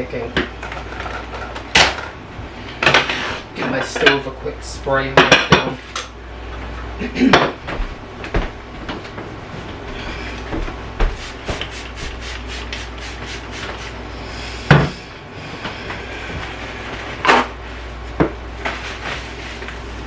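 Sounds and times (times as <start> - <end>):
cloth wiping a stovetop: 11.2 - 14.0.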